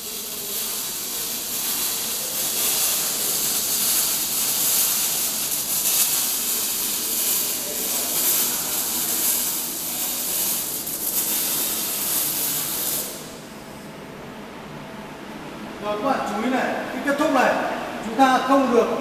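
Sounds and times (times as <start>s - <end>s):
welding arc hissing: 0.0s - 13.7s.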